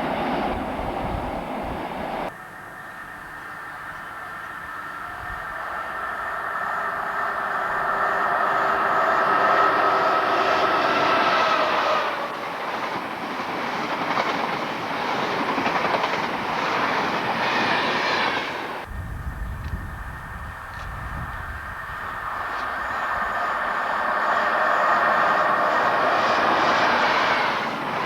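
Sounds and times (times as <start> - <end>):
train passing at speed: 0.0 - 28.0
train wheels over rail joints: 6.5 - 28.0.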